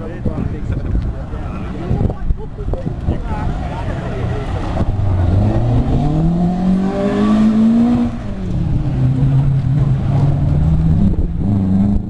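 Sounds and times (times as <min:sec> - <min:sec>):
rally car engine accelerating: 0:03.4 - 0:12.0.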